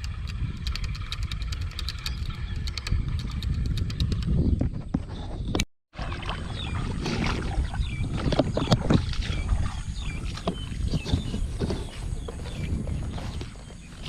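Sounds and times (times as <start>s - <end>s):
water sloshing and splashing: 5.9s - 14.0s.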